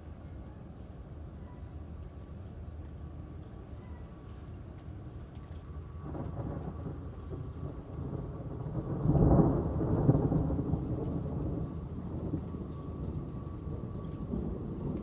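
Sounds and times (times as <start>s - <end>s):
rain: 0.0s - 15.0s
thunder rumbling: 5.7s - 15.0s.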